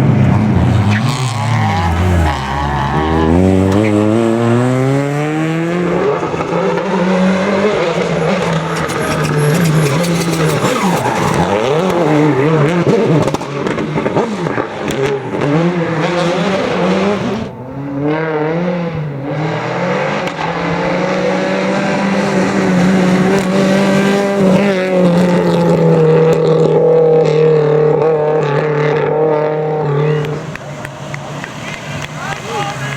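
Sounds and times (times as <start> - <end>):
rally car engine revving: 0.0 - 32.9.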